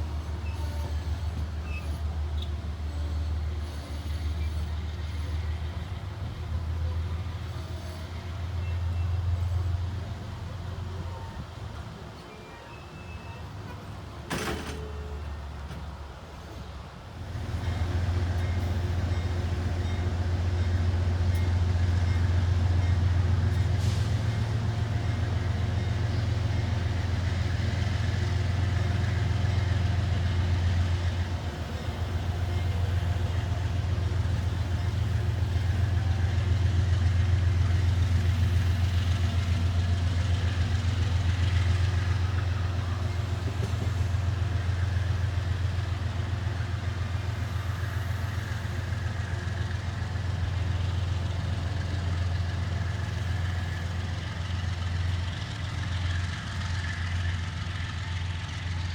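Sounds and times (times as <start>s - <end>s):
diesel locomotive engine idling: 0.0s - 58.9s.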